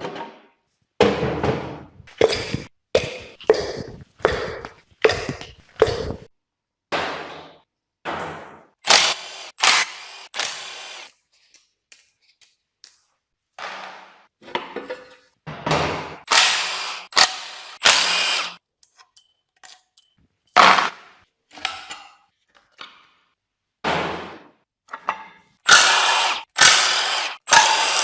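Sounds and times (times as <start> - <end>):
power tool bursts: 8.8 - 11.1, 16.3 - 18.6, 25.7 - 28.0.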